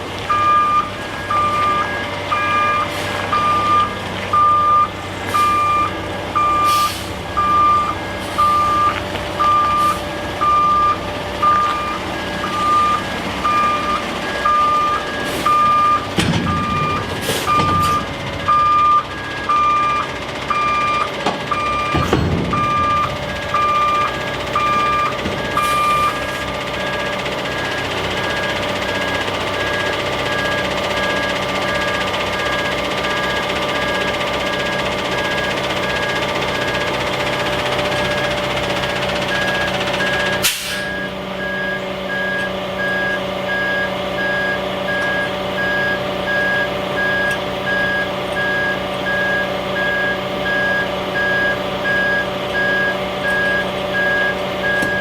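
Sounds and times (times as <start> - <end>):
truck engine running: 0.0 - 55.0
back-up alarm beeping: 0.3 - 37.2, 37.8 - 55.0.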